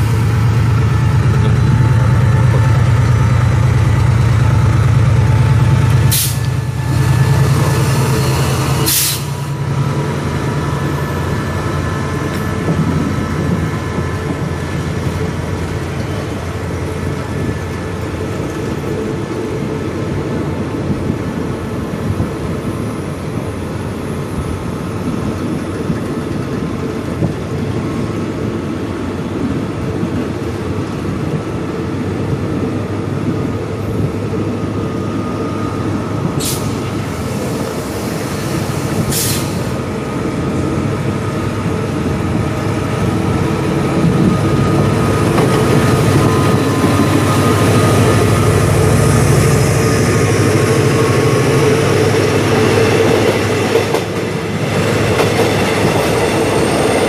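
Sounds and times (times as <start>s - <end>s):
locomotive engine humming: 0.0s - 57.0s
train rumble: 0.0s - 57.0s
short hiss: 8.9s - 9.4s.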